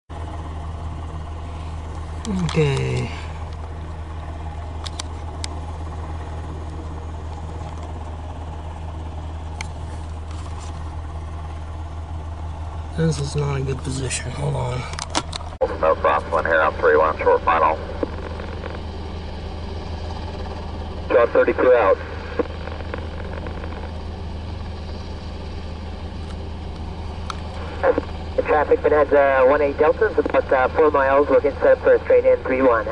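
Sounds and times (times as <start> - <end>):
low engine hum: 0.1 - 32.9.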